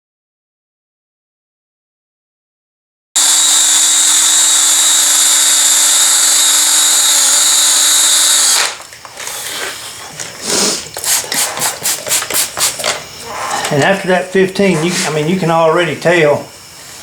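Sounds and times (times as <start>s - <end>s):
cordless drill whining: 3.2s - 9.4s.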